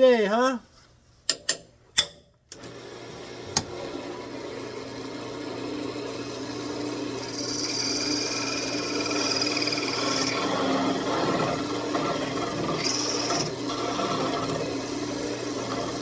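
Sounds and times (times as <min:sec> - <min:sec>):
wood lathe humming: 0:02.8 - 0:16.0
parting tool cutting spinning wood: 0:05.9 - 0:16.0.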